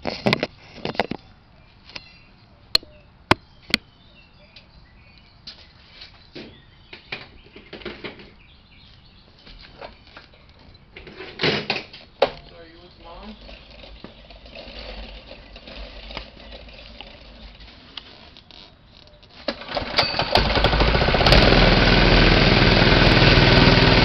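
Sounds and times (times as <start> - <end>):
faint high chirps: 1.2 - 6.5.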